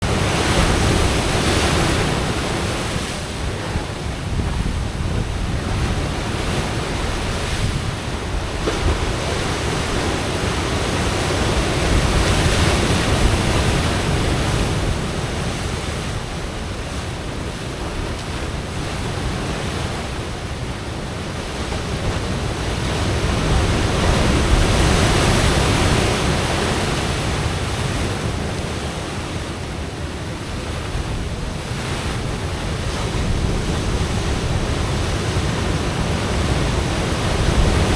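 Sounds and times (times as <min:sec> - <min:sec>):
surf breaking against rocks: 0:00.0 - 0:20.6, 0:30.4 - 0:37.9
wind buffeting microphone: 0:00.0 - 0:29.0, 0:30.4 - 0:37.9.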